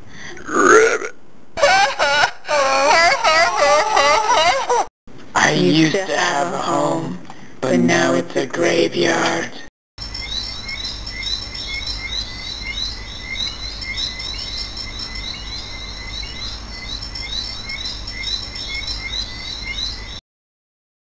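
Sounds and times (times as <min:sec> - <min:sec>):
birds chirping: 0:10.0 - 0:20.2.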